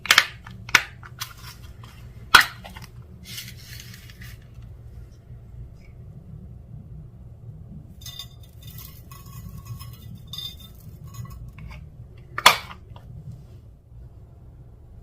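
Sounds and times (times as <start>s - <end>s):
low steady hum: 0.0s - 15.0s
containers clinking and rattling: 8.0s - 12.8s.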